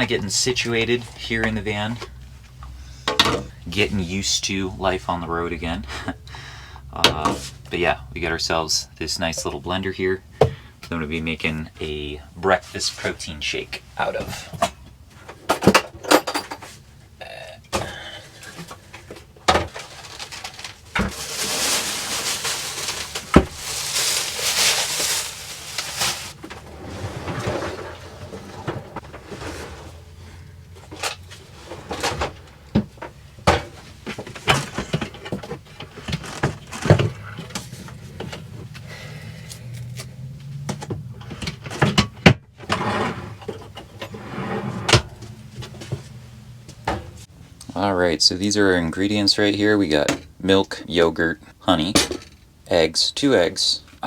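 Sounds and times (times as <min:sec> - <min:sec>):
items knocking and clattering: 0:01.4 - 0:03.6, 0:14.2 - 0:16.8, 0:17.7 - 0:29.6, 0:30.7 - 0:38.8, 0:39.8 - 0:44.2, 0:51.8 - 0:52.5
rustling: 0:18.4 - 0:32.7.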